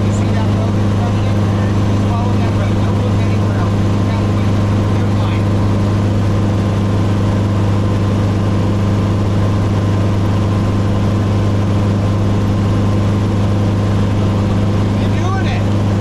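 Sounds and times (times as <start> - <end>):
helicopter drone: 0.0 - 16.0.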